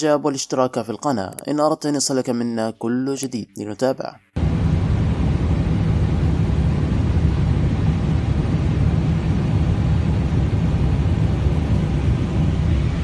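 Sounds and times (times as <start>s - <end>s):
jet engines rumbling: 4.4s - 13.0s.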